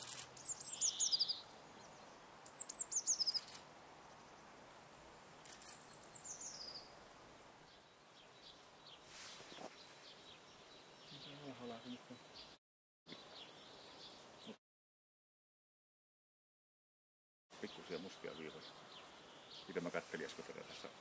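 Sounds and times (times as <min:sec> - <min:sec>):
small bird singing: 0:00.0 - 0:04.5, 0:05.5 - 0:07.0, 0:07.7 - 0:14.6, 0:17.6 - 0:19.9.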